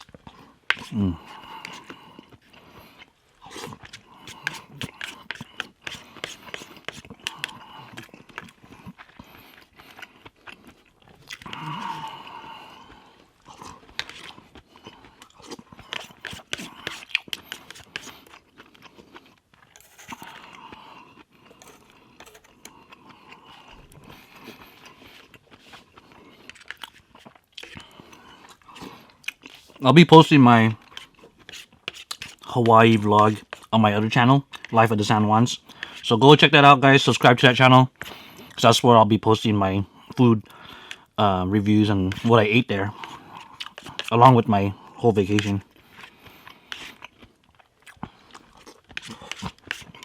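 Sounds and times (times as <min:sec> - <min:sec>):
person chewing: 0:00.0 - 0:29.8, 0:30.7 - 0:33.8, 0:34.4 - 0:34.8, 0:35.6 - 0:36.0, 0:41.9 - 0:50.0
person humming: 0:00.9 - 0:01.2, 0:11.5 - 0:12.2.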